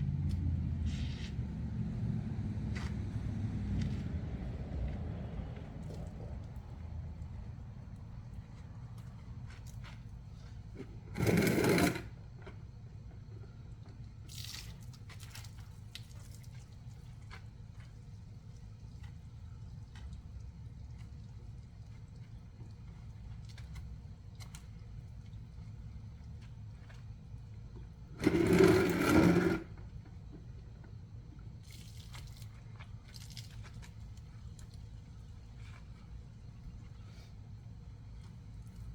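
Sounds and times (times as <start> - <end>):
low steady rumble: 0.0 - 11.7
pressure washer pump humming: 11.1 - 12.2, 28.2 - 29.8
faint drips: 13.6 - 28.0, 30.4 - 38.9.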